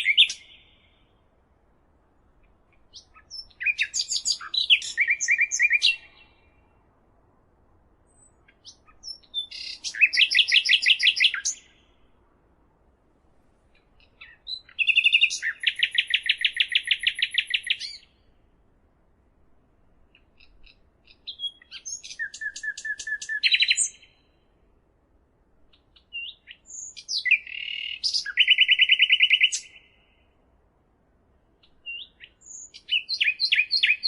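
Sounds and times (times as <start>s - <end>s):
songbird singing with trills: 0.0s - 1.2s, 2.4s - 6.8s, 8.1s - 12.0s, 14.0s - 18.3s, 20.2s - 24.4s, 25.7s - 30.3s, 31.6s - 34.0s.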